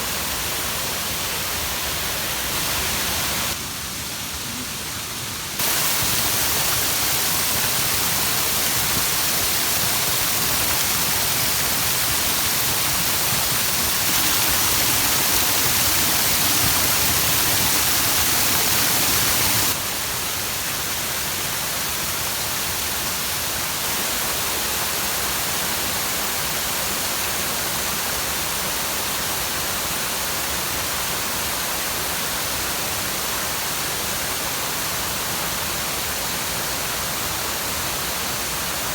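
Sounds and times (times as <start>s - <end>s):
waterfall rushing: 0.0s - 21.4s.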